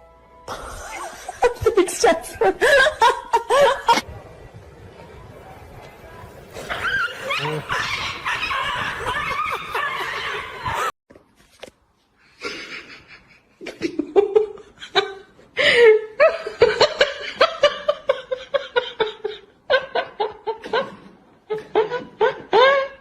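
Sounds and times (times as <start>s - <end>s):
person laughing hard: 0.5s - 1.8s.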